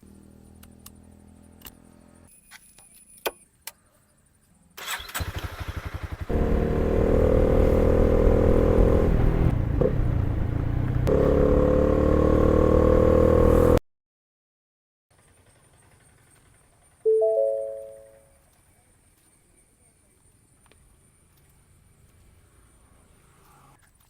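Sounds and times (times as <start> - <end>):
motorcycle engine cranking and starting: 4.8 - 8.6.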